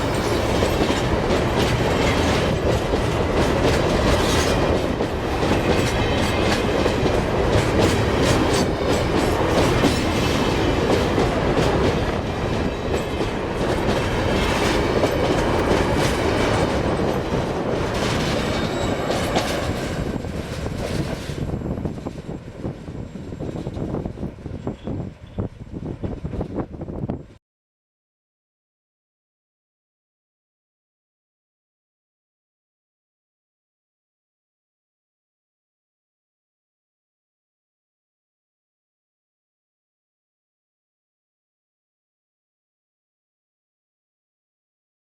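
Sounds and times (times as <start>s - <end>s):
train wheels clacking over rail joints: 0.0s - 22.4s
train rumbling past: 0.0s - 27.4s.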